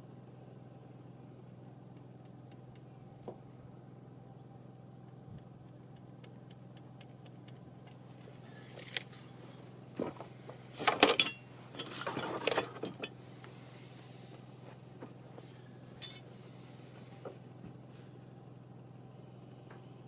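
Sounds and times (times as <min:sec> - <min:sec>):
steady low hum: 0:00.0 - 0:20.0
hard objects clinking and rattling: 0:16.0 - 0:16.3.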